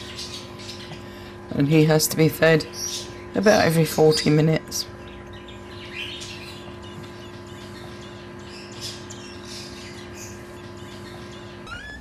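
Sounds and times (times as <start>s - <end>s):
steady low hum: 0.0s - 12.0s
fledgling bird begging chirps: 2.7s - 12.0s.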